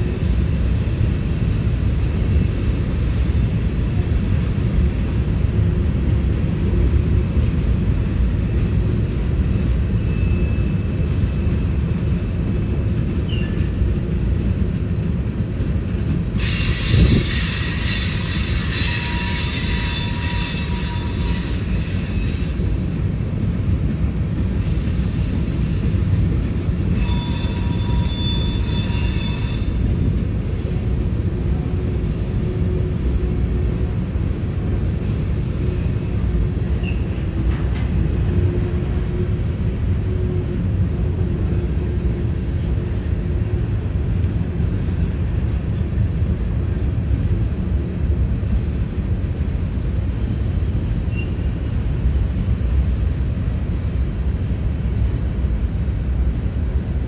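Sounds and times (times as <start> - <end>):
freight train wheels rumbling on rail: 0.0 - 57.0
high-pitched wheel squeal: 16.4 - 22.8, 26.9 - 30.1.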